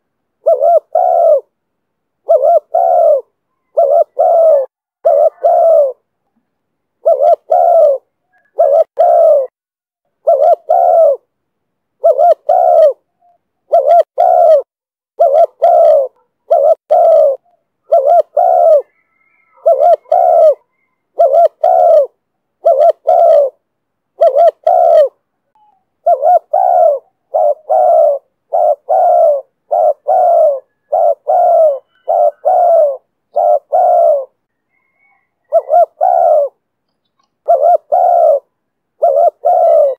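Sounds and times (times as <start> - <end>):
dove cooing: 0.0 - 1.6, 2.2 - 6.1, 7.0 - 9.6, 10.2 - 11.3, 12.0 - 39.9.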